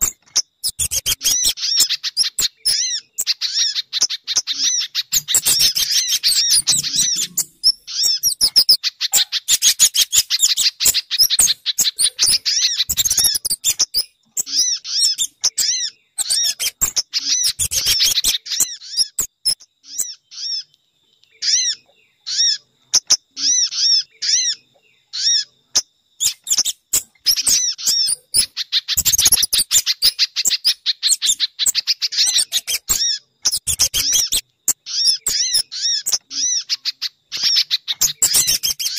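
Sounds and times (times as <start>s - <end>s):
rapid high bird chirps: 0.0s - 38.9s.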